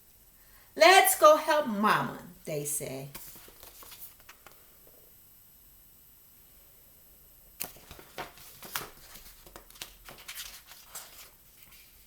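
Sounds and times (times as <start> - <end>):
book pages turning: 3.1 - 4.6, 7.6 - 12.0
paper rustling and crinkling: 3.1 - 4.6, 7.6 - 12.0.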